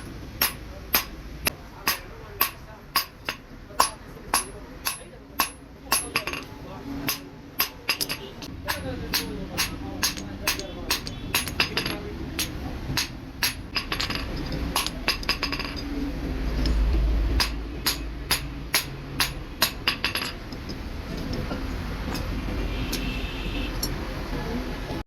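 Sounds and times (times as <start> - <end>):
hammer striking metal: 0.0 - 23.1.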